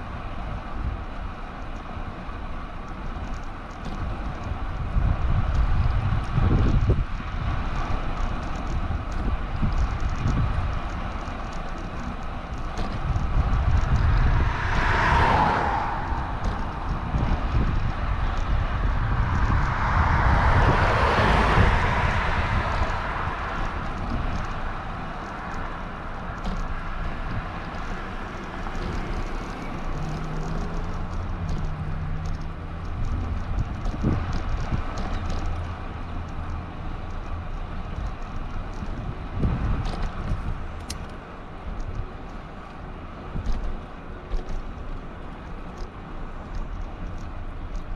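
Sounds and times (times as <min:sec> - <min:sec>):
road noise: 0:00.0 - 0:47.9
wind buffeting microphone: 0:00.0 - 0:47.9
motor vehicle passing: 0:04.4 - 0:40.8.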